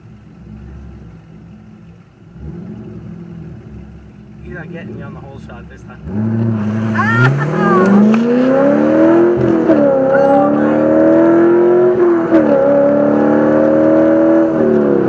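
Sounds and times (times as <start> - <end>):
race car engine accelerating: 2.3 - 15.0.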